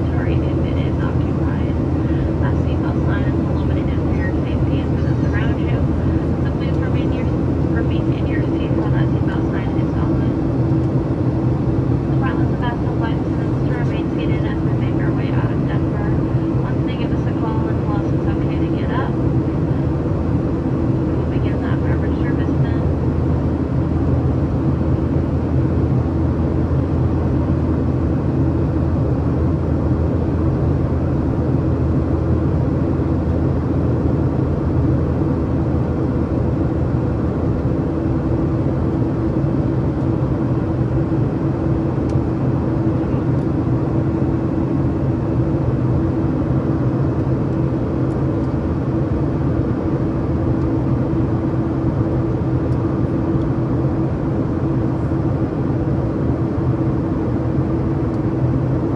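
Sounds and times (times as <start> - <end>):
airplane cabin engine roar: 0.0 - 58.9.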